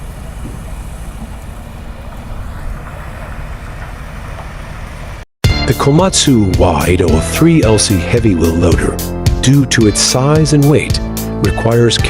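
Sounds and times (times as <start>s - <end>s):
road or wind noise: 0.0s - 5.3s
heavy vehicle rumbling: 0.0s - 12.0s.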